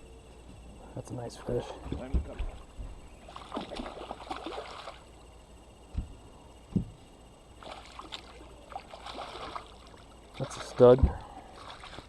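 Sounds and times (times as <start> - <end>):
dull knocks against boat: 1.8 - 2.6
water splashing and sloshing: 1.8 - 5.2, 7.5 - 12.0.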